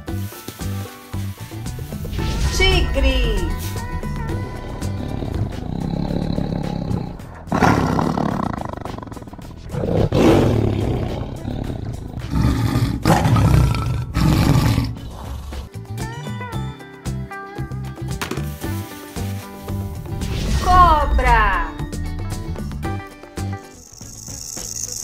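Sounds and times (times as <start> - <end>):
tiger roaring: 2.0 - 15.7.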